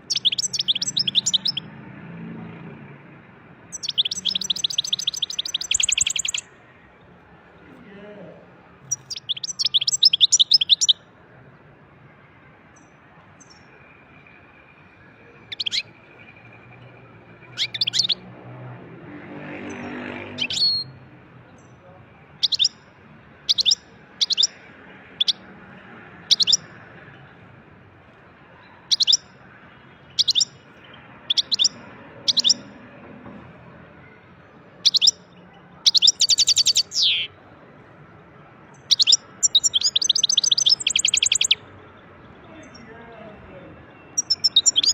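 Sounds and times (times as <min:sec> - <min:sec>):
high bird call notes: 0:00.0 - 0:01.8, 0:03.7 - 0:06.6, 0:08.8 - 0:11.0, 0:15.4 - 0:16.5, 0:17.4 - 0:18.3, 0:19.7 - 0:21.0, 0:22.4 - 0:22.8, 0:23.5 - 0:25.4, 0:26.3 - 0:26.6, 0:28.8 - 0:29.3, 0:30.0 - 0:30.6, 0:31.2 - 0:32.8, 0:34.8 - 0:35.2, 0:35.8 - 0:37.4, 0:38.7 - 0:41.8, 0:43.9 - 0:44.9
goldfinch twittering trills: 0:00.1 - 0:01.6, 0:03.7 - 0:06.4, 0:08.9 - 0:11.0, 0:28.9 - 0:29.2, 0:30.2 - 0:30.5, 0:31.3 - 0:32.6, 0:35.9 - 0:37.3, 0:38.9 - 0:41.6, 0:44.1 - 0:44.9.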